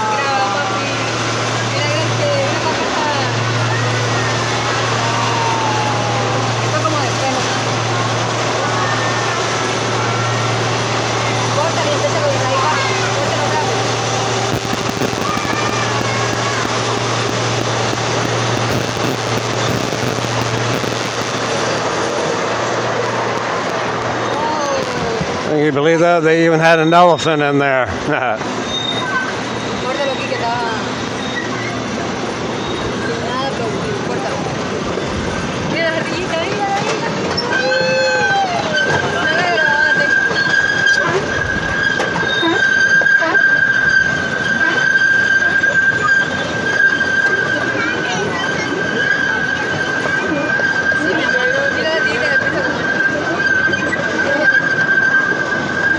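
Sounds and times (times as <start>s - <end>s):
constant low hum: 0.0s - 25.8s
train wheels squealing: 37.3s - 55.9s.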